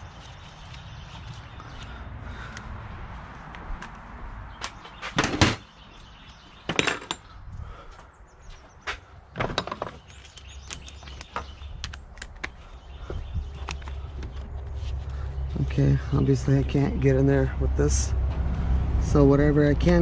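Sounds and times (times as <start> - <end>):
metal parts clattering: 6.7 - 7.3.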